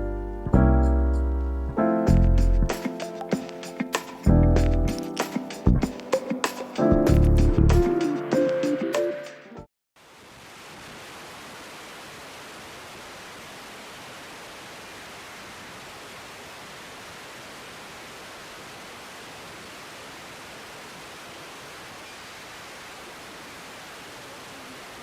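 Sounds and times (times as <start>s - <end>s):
intro music: 0.0s - 9.7s
outdoor background hiss: 0.1s - 25.0s.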